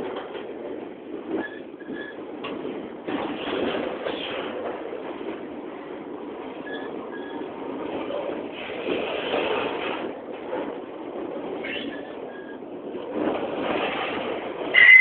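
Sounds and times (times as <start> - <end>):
freight train rumbling past: 0.0 - 15.0
high wheel squeaks: 1.4 - 2.2, 11.6 - 12.6, 14.7 - 15.0.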